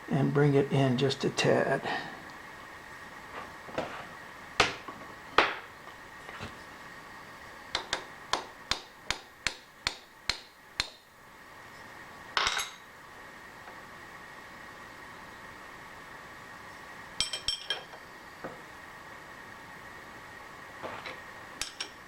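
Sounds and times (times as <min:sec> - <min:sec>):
hammer tapping on metal: 0:07.7 - 0:11.0.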